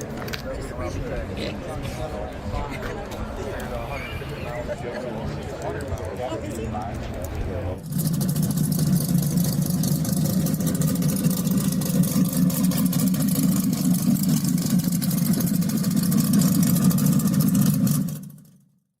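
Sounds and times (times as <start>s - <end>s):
car engine running: 7.4s - 18.7s.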